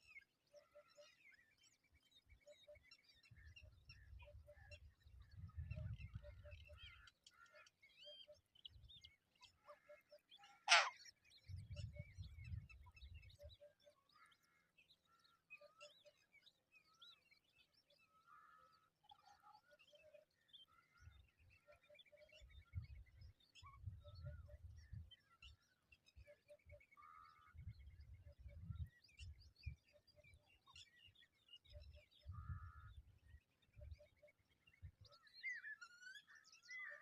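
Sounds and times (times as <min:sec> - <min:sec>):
birds chirping and calling: 0:09.4 - 0:16.1, 0:18.0 - 0:33.1.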